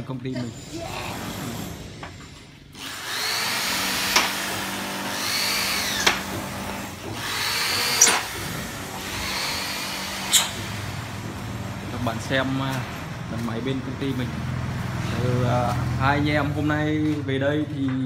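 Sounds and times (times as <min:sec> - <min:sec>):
power drill whining: 0:00.4 - 0:13.7
drill clutch click: 0:02.8 - 0:04.5.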